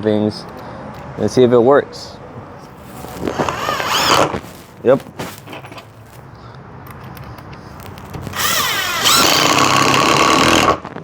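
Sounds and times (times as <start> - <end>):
cordless impact driver running: 3.2 - 4.3, 8.2 - 10.9.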